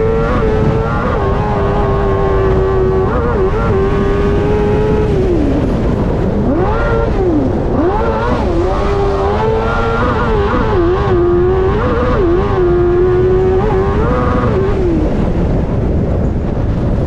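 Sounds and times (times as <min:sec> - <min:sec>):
rally car engine at high revs: 0:00.0 - 0:17.0
wind and road noise: 0:00.0 - 0:17.0.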